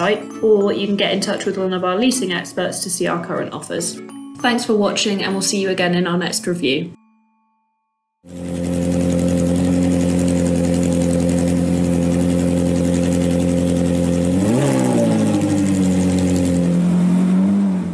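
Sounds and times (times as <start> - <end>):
car engine idling and revving: 8.3 - 17.9.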